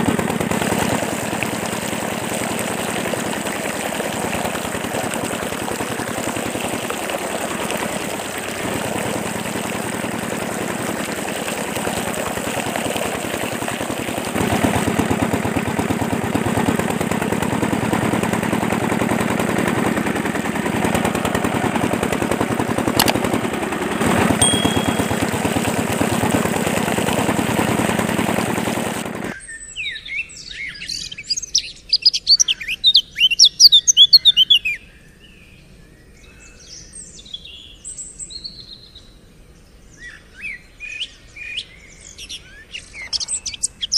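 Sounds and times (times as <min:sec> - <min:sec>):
small pump motor chugging: 0:00.0 - 0:29.4
water splashing: 0:00.0 - 0:29.4
small birds chirping: 0:29.4 - 0:34.7, 0:40.0 - 0:43.9.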